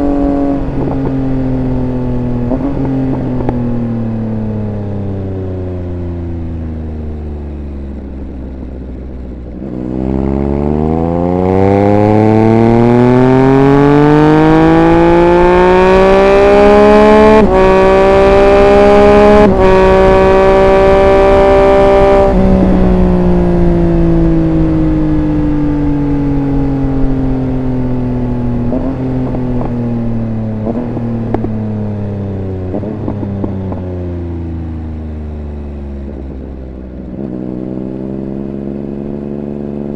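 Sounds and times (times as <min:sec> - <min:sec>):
wind rush: 0:00.0 - 0:04.1, 0:17.4 - 0:27.6
motorcycle engine revving hard: 0:09.4 - 0:27.2, 0:27.8 - 0:31.6.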